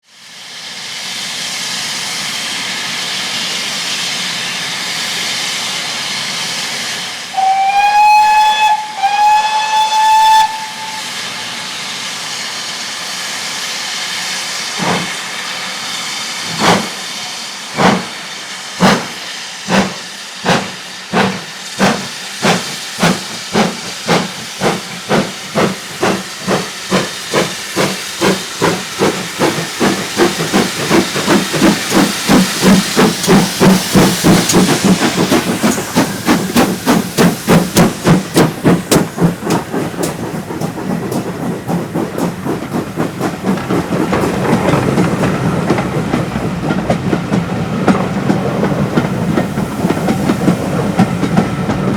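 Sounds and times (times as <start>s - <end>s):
steam locomotive hissing: 0.1s - 51.9s
steam whistle blasts: 7.3s - 11.9s
locomotive exhaust beats: 7.4s - 11.2s, 18.8s - 51.9s.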